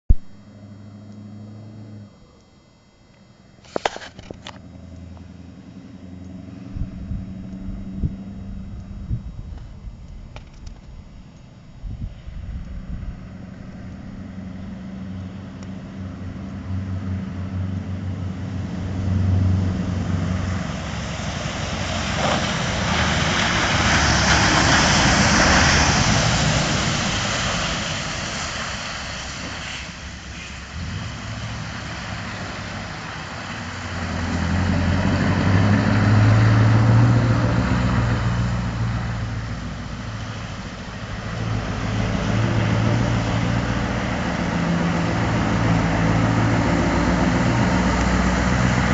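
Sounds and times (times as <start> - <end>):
truck engine running: 0.0 - 48.9
loud rushing noise: 17.6 - 48.9.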